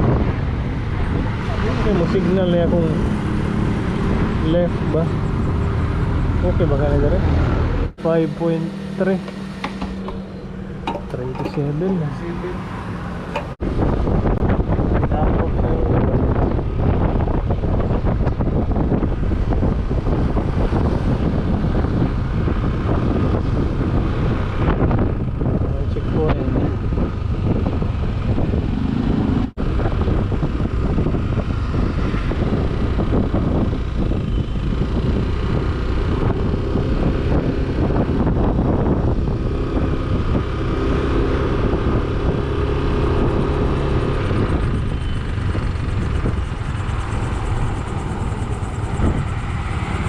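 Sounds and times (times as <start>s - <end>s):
wind rushing over microphone: 0.0s - 50.0s
scooter engine running: 43.2s - 50.0s.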